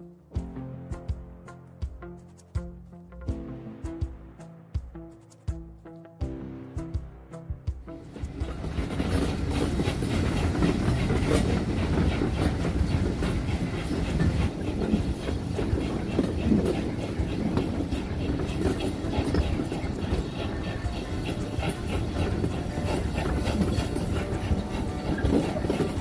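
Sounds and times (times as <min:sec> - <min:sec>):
rumble of train wheels on rail: 0:07.7 - 0:26.0.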